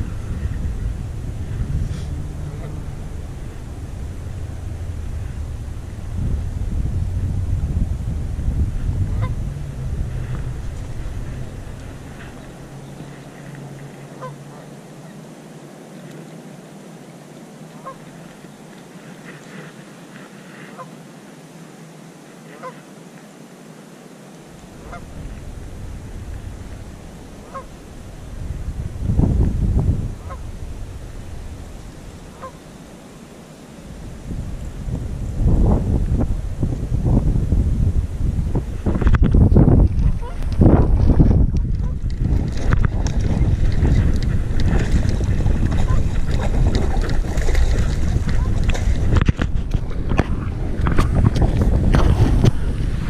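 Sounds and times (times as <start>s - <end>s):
geese honking: 0.0s - 6.1s, 9.0s - 14.8s, 17.8s - 18.1s, 20.7s - 20.9s, 24.7s - 28.1s, 30.2s - 30.6s, 31.7s - 33.3s, 40.0s - 40.6s, 45.6s - 47.0s
low rumble: 0.0s - 14.6s, 24.6s - 32.6s, 33.9s - 53.0s
wind buffeting microphone: 0.0s - 14.7s, 24.6s - 53.0s.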